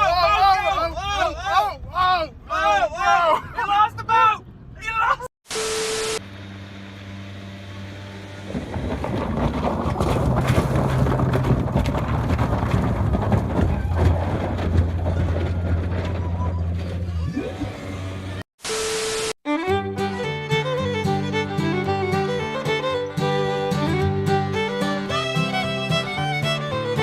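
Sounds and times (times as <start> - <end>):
motorboat engine humming: 6.2 - 18.4
wind noise: 8.4 - 16.6.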